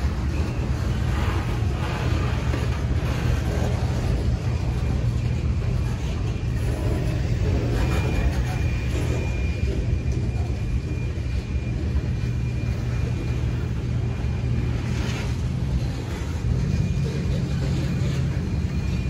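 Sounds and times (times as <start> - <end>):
faint high whine: 0.0 - 19.0
train wheels rumbling on rails: 0.0 - 19.0.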